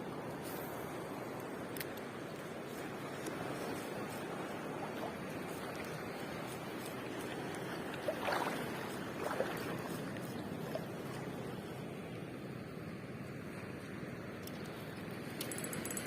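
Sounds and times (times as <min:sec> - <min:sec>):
sea surf: 0:02.8 - 0:12.0.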